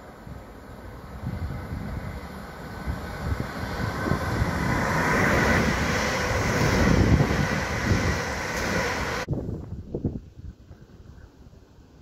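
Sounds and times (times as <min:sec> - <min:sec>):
passenger train passing: 0:00.0 - 0:09.3
wind buffeting microphone: 0:00.2 - 0:12.0.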